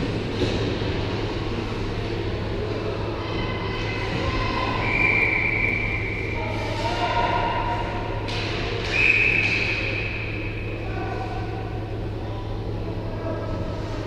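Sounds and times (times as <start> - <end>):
arena low hum: 0.0 - 14.0
referee whistle blast: 8.9 - 10.1.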